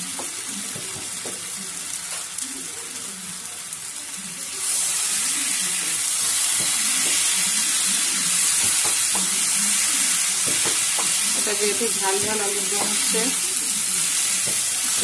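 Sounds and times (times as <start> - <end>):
potatoes sizzling in hot oil: 0.0 - 15.0
spatula stirring in a pan: 4.6 - 15.0.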